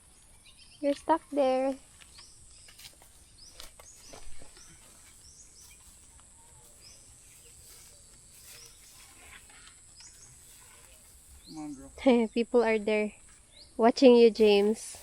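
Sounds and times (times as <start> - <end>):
small bird chirping: 0.0 - 15.0
insect drone: 8.8 - 15.0.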